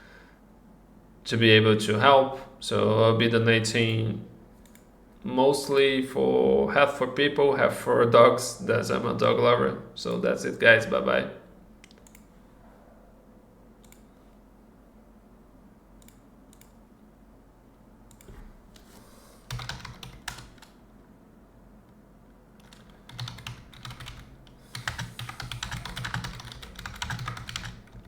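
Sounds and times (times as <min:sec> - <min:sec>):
typing on computer keyboard: 0:19.5 - 0:20.8, 0:22.6 - 0:28.0.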